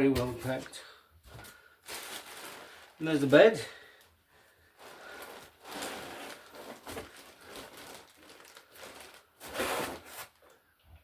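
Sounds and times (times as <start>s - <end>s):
packaging rustling and crinkling: 1.4s - 3.6s, 4.6s - 10.6s.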